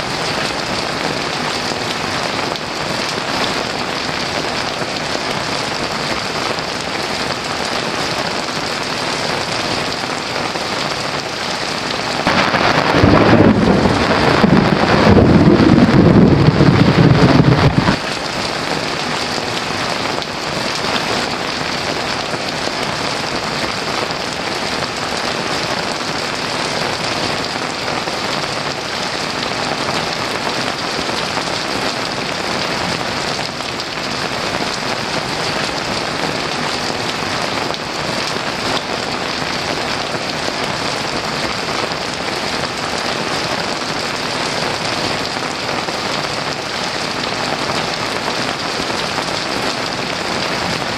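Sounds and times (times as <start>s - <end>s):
heavy rain: 0.0s - 50.9s
thunder rumble: 12.2s - 18.5s.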